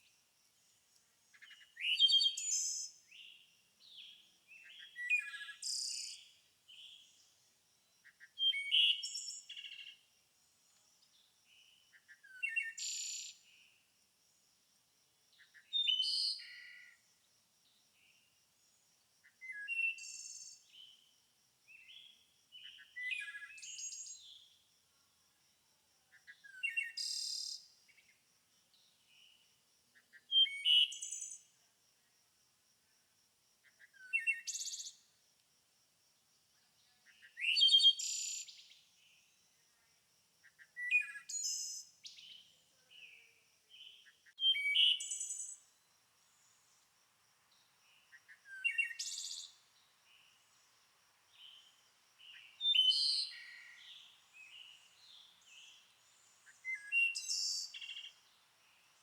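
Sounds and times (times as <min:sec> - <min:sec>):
songbird twittering: 0:43.7 - 0:45.6, 0:47.9 - 0:50.4, 0:51.3 - 0:58.8.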